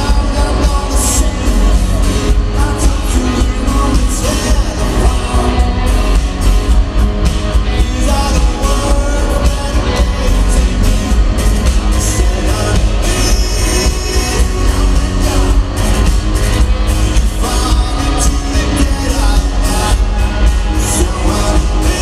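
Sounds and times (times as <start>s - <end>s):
lead vocal singing: 0.0s - 22.0s
live rock band playing: 0.0s - 22.0s.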